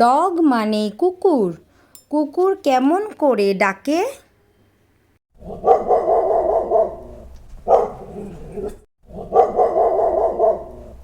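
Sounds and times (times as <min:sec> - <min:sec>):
dog barking rapidly: 0:05.4 - 0:11.0.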